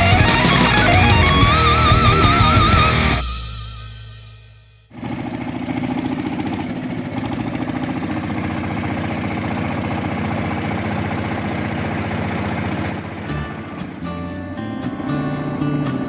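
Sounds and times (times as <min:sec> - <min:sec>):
engine running steadily: 0:04.9 - 0:16.0.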